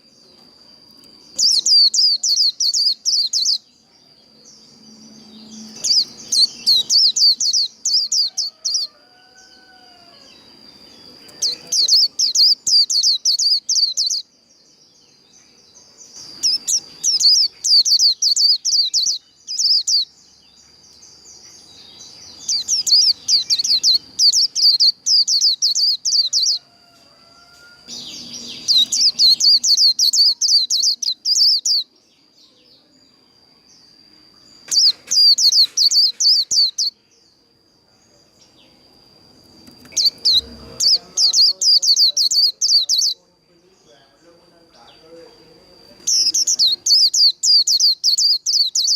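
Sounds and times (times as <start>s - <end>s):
bird twittering song: 0.0s - 48.9s.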